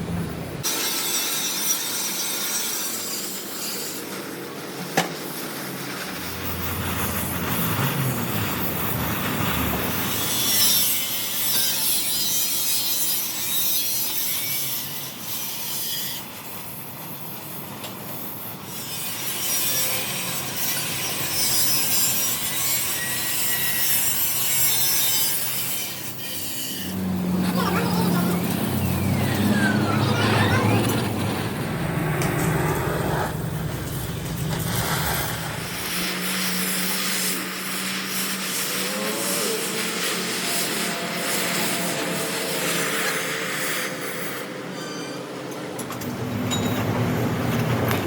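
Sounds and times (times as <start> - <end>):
tool rasping on metal: 18.2 - 28.0.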